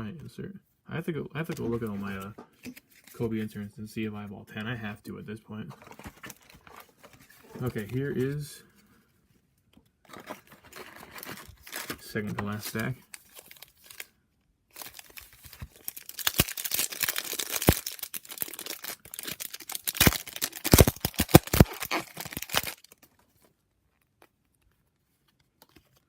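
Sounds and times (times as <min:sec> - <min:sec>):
plastic wrapper tearing and crinkling: 0:05.8 - 0:08.0, 0:10.1 - 0:12.0, 0:12.6 - 0:14.1, 0:14.7 - 0:23.2.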